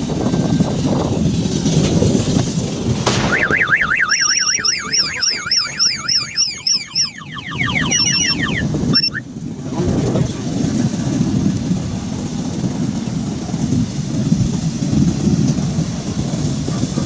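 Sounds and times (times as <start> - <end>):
street and fire background: 0.0 - 17.0
sharp crack: 2.4 - 7.0
car alarm warbling: 3.1 - 9.2.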